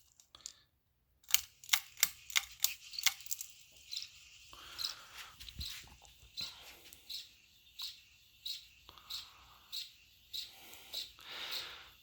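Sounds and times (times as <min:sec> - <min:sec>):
ceiling fan motor squeaking: 0:02.4 - 0:12.0.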